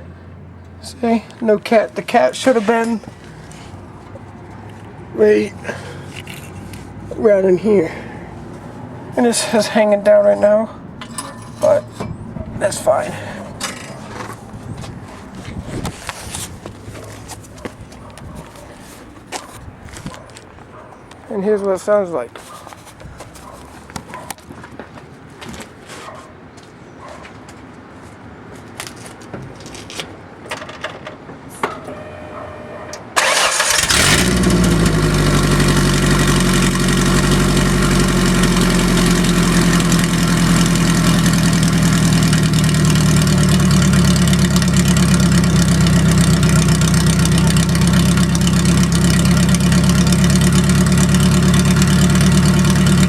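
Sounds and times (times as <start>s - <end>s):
loud engine starting and idling: 10.4s - 15.7s, 31.9s - 53.0s.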